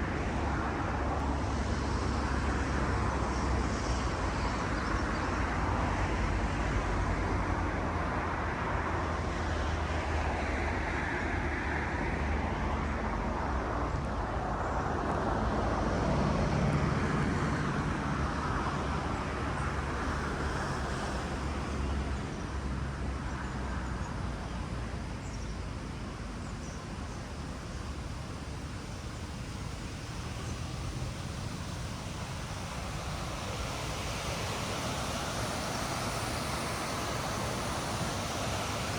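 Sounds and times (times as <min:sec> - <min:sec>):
road traffic rumble: 0:00.0 - 0:38.9.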